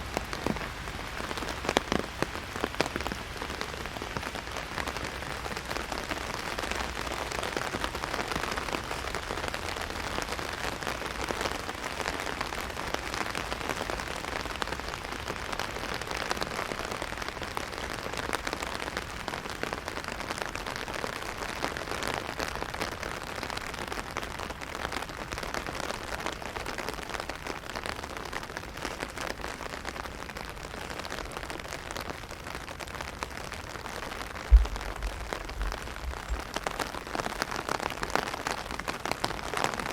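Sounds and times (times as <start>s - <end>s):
heavy rain on an umbrella: 0.0s - 39.9s
low thump: 34.5s - 36.4s.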